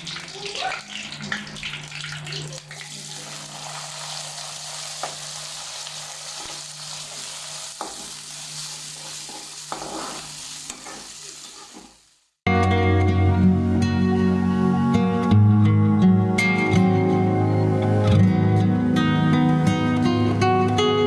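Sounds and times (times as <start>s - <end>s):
spices sizzling in hot oil: 0.0s - 12.4s.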